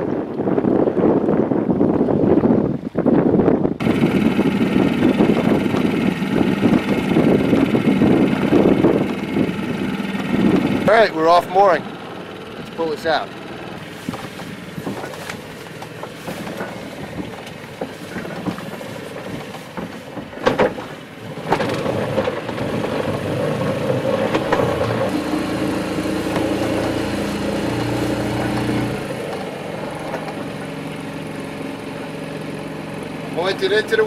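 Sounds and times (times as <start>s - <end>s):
small boat motor running: 3.8s - 34.0s
knocks and clunks: 14.0s - 25.1s.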